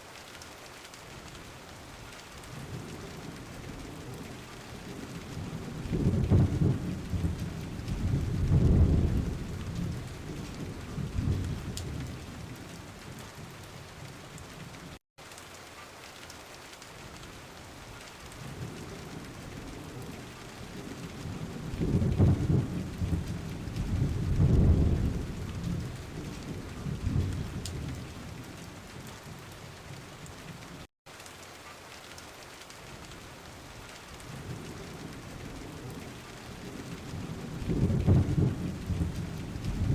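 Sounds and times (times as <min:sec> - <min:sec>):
steady rain falling: 0:00.0 - 0:39.9
low rumbling thunder: 0:02.5 - 0:14.7, 0:18.4 - 0:29.9, 0:34.3 - 0:39.9.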